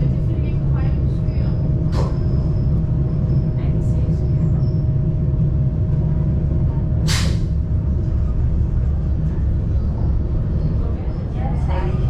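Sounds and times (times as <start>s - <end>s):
train rumbling: 0.0s - 12.0s
air hissing: 7.0s - 7.5s.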